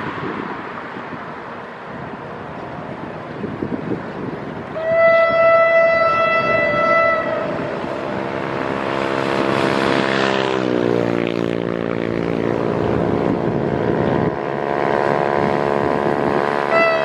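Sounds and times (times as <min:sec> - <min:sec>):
locomotive engine running: 0:00.8 - 0:17.0
locomotive horn blast: 0:04.7 - 0:10.2, 0:16.2 - 0:17.0.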